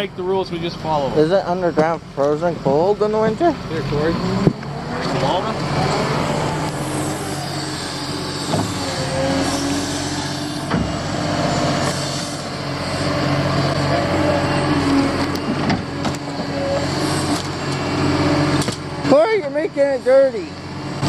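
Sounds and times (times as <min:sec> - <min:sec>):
heavy machinery diesel engine: 0:00.0 - 0:21.0
sharp knocks: 0:08.5 - 0:08.8.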